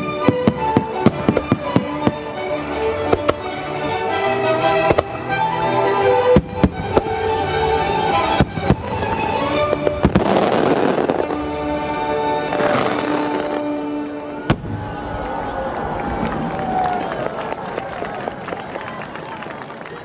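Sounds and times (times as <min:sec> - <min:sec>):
classical music over loudspeakers: 0:00.0 - 0:14.9.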